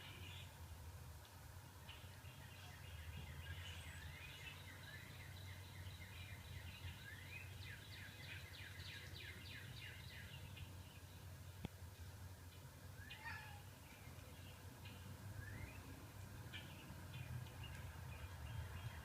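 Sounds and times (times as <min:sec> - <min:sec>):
birds chirping through speaker: 0:12.5 - 0:19.0.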